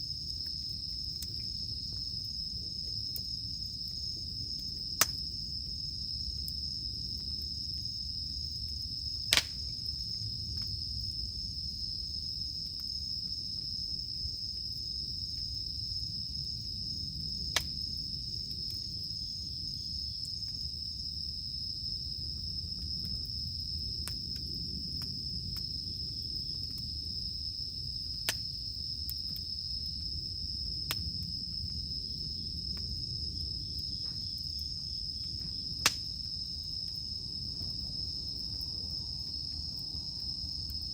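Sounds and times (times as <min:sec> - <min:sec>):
campfire crackling: 0:00.0 - 0:40.9
insects droning: 0:00.0 - 0:40.9.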